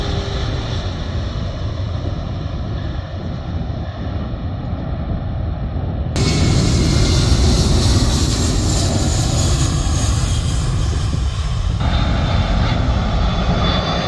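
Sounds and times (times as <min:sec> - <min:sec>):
jet engine rumble: 0:00.0 - 0:14.0.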